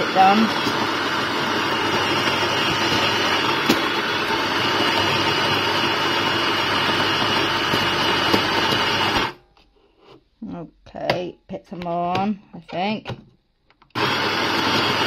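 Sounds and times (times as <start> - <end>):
coffee grinder grinding beans: 0.0 - 9.4, 13.9 - 15.0.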